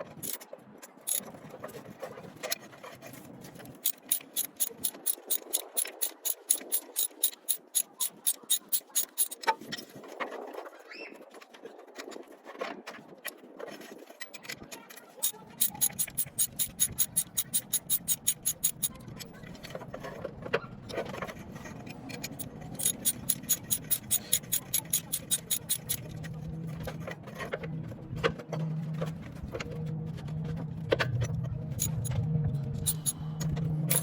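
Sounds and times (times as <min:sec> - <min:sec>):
ratchet wrench clicking: 0:00.1 - 0:00.4, 0:01.1 - 0:01.3, 0:03.8 - 0:09.4, 0:15.2 - 0:19.0, 0:22.2 - 0:26.1, 0:31.8 - 0:33.3.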